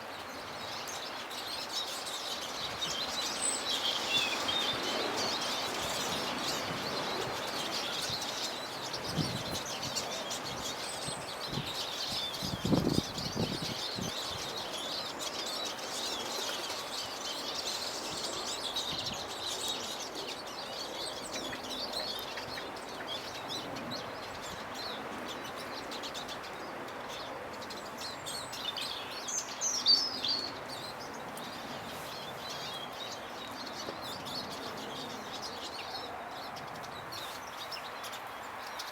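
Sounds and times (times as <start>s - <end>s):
small birds twittering and chirping: 0.0s - 38.9s.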